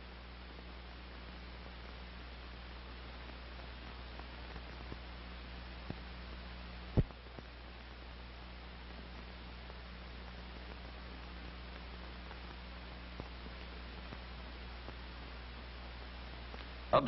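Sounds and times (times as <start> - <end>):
film soundtrack hiss and hum: 0.0 - 17.0
faint clicks: 8.9 - 15.2, 15.9 - 16.9.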